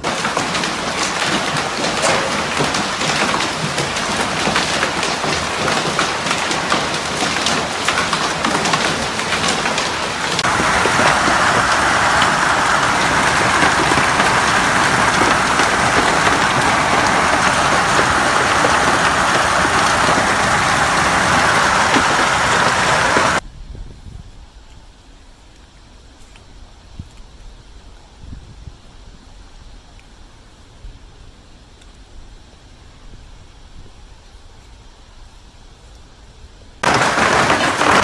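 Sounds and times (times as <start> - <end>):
downpour hiss: 0.0 - 23.4, 36.8 - 38.0
hail and heavy rain pelting: 0.0 - 23.4, 36.8 - 38.0.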